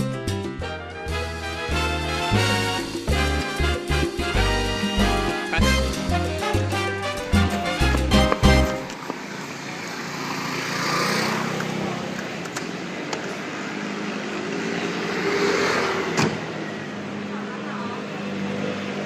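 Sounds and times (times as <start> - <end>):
background music: 0.0 - 9.0
road noise: 0.6 - 19.0.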